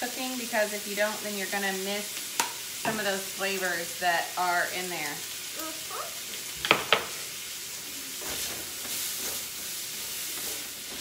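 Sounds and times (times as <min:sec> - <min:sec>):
food sizzling in a wok: 0:00.0 - 0:11.0
spatula scraping a pan: 0:08.2 - 0:11.0.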